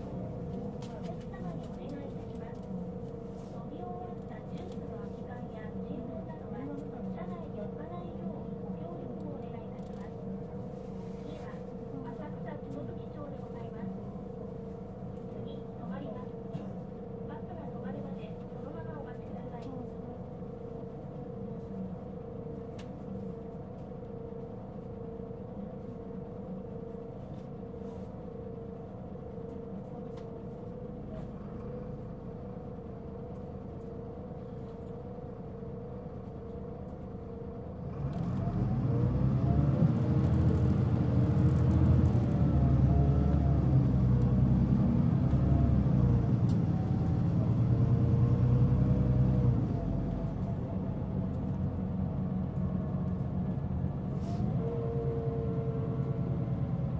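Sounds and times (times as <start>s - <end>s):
diesel bus engine: 0.0s - 56.9s.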